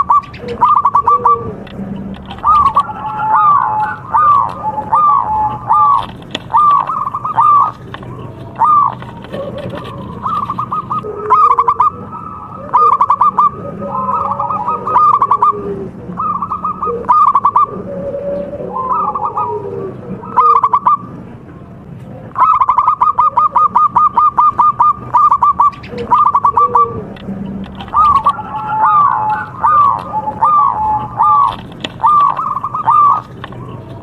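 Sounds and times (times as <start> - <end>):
doves cooing: 0.0 - 34.0.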